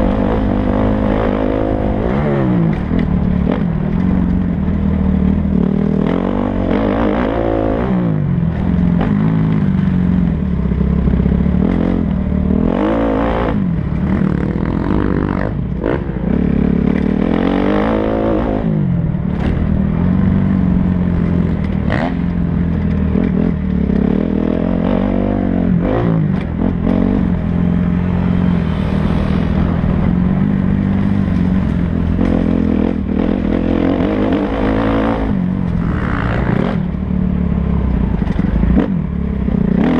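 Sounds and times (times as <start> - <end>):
motocross bike engines revving: 10.7 - 37.0.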